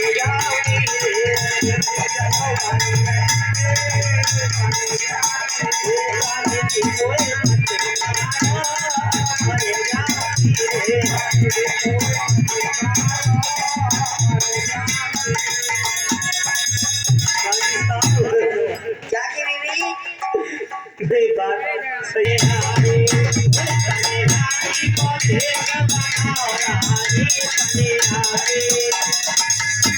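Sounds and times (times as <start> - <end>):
steady drum beat: 0.0 - 19.3, 22.3 - 29.9.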